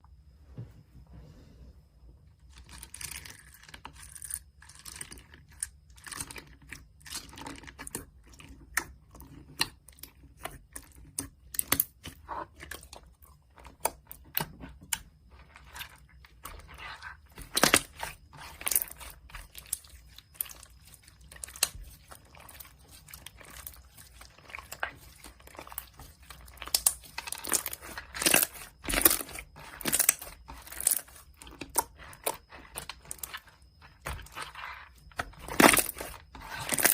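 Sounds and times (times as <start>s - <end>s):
bead slime crunching: 15.2s - 36.9s.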